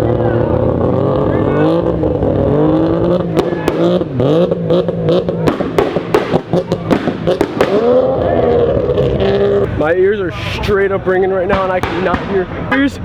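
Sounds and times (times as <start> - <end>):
exhaust pops and bangs: 0.0 - 9.7, 11.4 - 13.0
car engine revving: 0.0 - 9.9.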